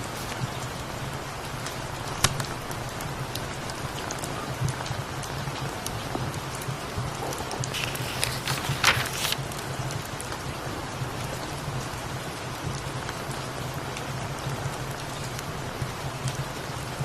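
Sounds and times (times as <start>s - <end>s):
papery rustle: 0.0s - 0.4s, 7.7s - 9.7s
steady rain: 0.0s - 17.0s
faint crackles: 7.4s - 9.7s.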